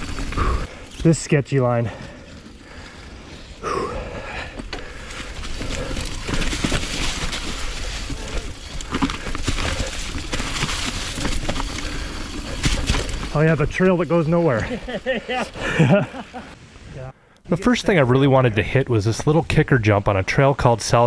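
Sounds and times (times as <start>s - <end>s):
tyres rolling over dirt and rocks: 0.0s - 16.3s
bike rattling: 0.0s - 16.6s.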